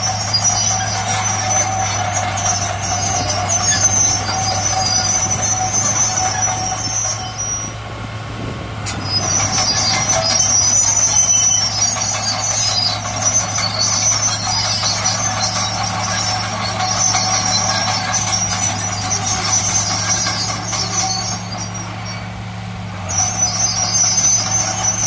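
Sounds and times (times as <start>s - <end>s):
high metallic squealing: 0.0s - 7.8s, 8.8s - 25.0s
heavy machine engine drone: 0.0s - 25.0s.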